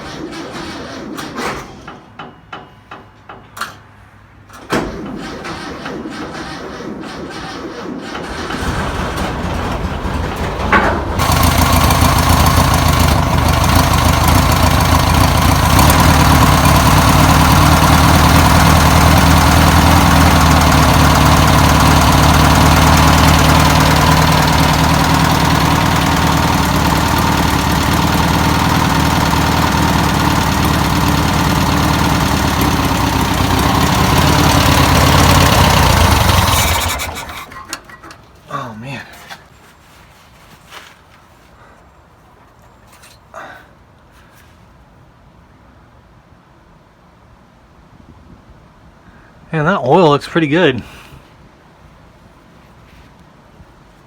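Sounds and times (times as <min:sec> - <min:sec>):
engine starting and running: 0:00.0 - 0:39.4.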